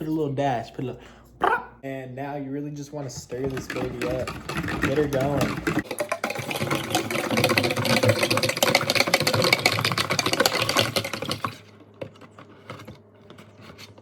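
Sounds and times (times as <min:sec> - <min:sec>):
water being stirred in container: 0:03.2 - 0:11.7.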